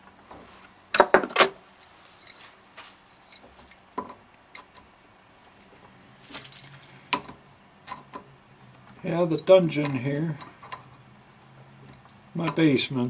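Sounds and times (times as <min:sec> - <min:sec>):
tools and parts clattering: 0:00.9 - 0:04.9, 0:05.6 - 0:11.0, 0:11.8 - 0:12.7.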